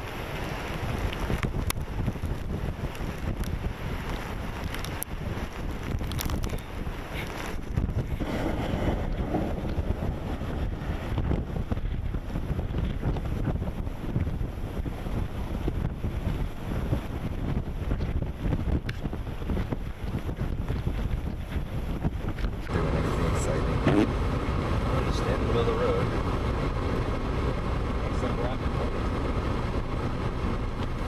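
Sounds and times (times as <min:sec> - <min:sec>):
blizzard wind gusting: 0:00.0 - 0:31.0.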